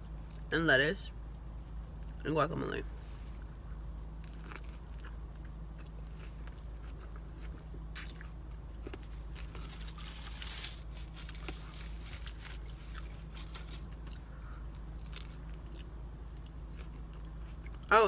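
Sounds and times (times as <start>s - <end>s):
steady low hum: 0.0s - 18.0s
biting into a wrap: 4.2s - 14.2s
person chewing food: 4.2s - 17.9s.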